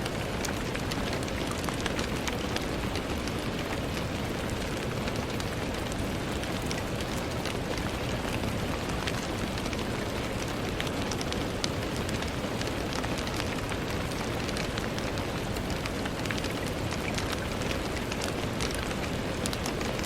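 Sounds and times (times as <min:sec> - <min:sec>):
rain on a window: 0:00.0 - 0:20.0
raindrops ticking: 0:00.0 - 0:20.0.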